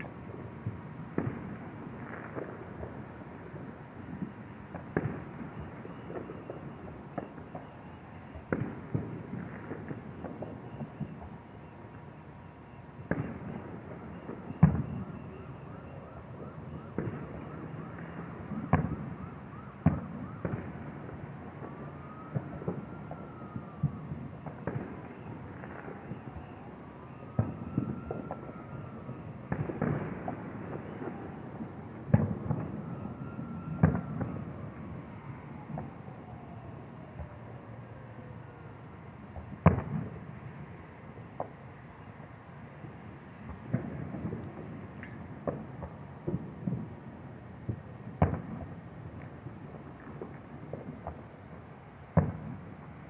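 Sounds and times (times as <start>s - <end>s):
fireworks popping and banging: 0.0s - 11.6s, 16.7s - 34.5s, 39.3s - 40.3s, 42.8s - 53.0s
siren-like rising and falling tone: 13.4s - 39.5s.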